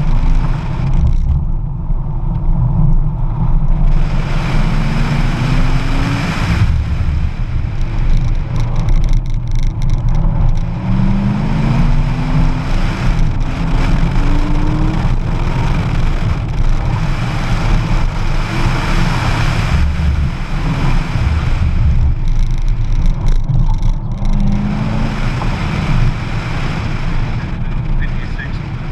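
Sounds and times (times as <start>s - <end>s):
sports car engine accelerating: 0.0s - 28.9s
wind buffeting microphone: 5.2s - 28.0s.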